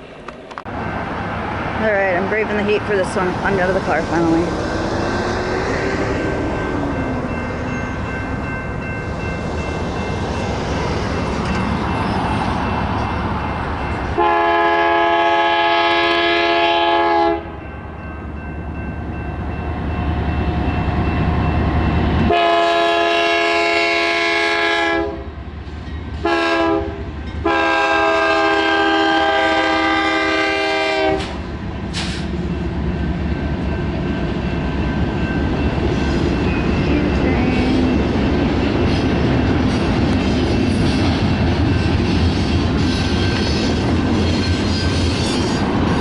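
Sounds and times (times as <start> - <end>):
passing train rumble: 0.0 - 46.0
locomotive air horn blasts: 14.2 - 17.6, 22.3 - 25.2, 26.2 - 31.4.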